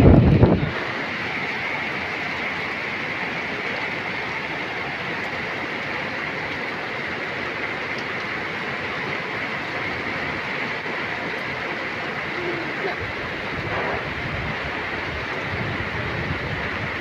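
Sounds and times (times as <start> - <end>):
wind buffeting microphone: 0.0 - 0.8, 12.9 - 17.0
strong wind rushing: 0.0 - 1.0, 12.9 - 17.0.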